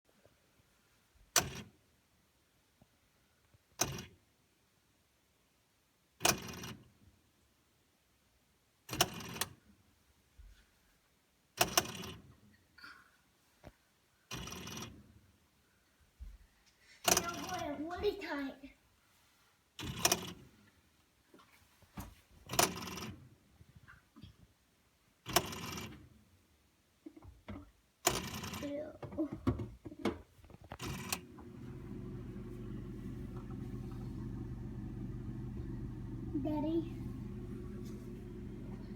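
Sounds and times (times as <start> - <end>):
refrigerator low hum: 30.8 - 38.9.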